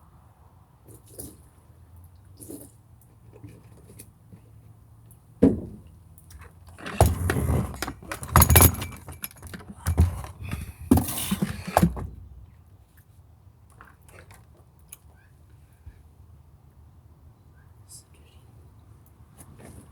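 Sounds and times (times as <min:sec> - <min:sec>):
plastic parts knocking and clattering: 0:06.4 - 0:12.5.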